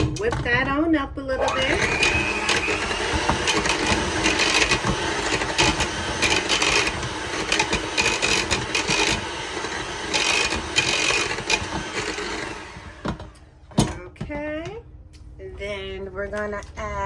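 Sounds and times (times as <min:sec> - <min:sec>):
electric mixer running: 0:01.4 - 0:13.5.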